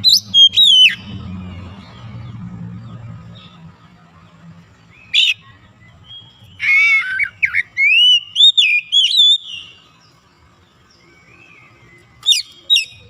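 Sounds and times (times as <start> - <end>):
bird singing whistled phrases: 0.0 - 1.2, 5.0 - 9.9, 11.1 - 13.0.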